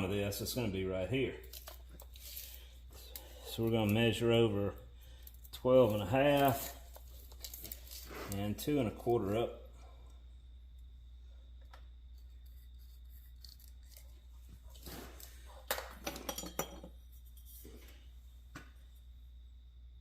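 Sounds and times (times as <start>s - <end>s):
steady low hum: 0.0s - 20.0s
small tools clinking and tapping: 15.7s - 17.0s.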